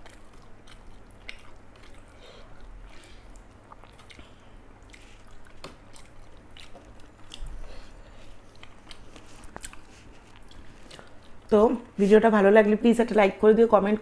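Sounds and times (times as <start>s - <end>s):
person chewing food: 0.0s - 11.5s.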